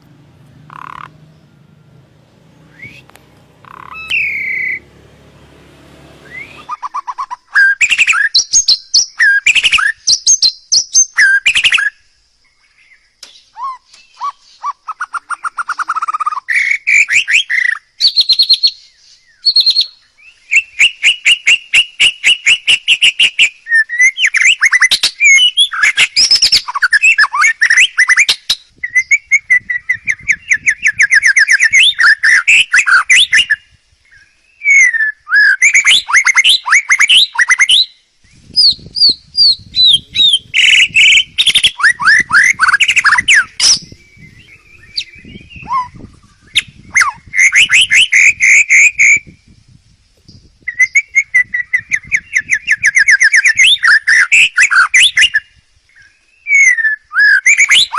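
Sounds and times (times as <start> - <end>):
songbird singing: 0.0 - 57.9.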